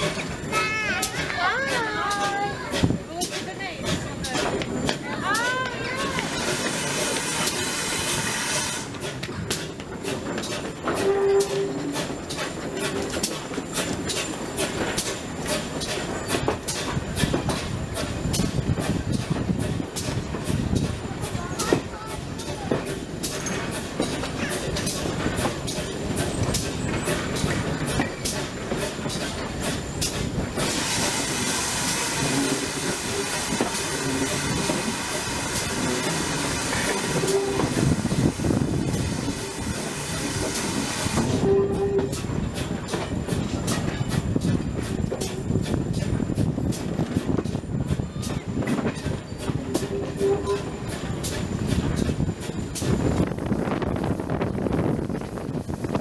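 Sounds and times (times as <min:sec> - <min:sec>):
steam hissing: 0:00.0 - 0:56.0
train wheels clicking over rail joints: 0:00.0 - 0:56.0.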